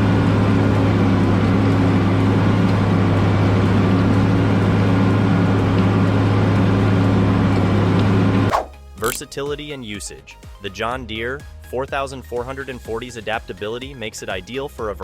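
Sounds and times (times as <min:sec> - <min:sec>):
diesel tractor engine running: 0:00.0 - 0:08.5.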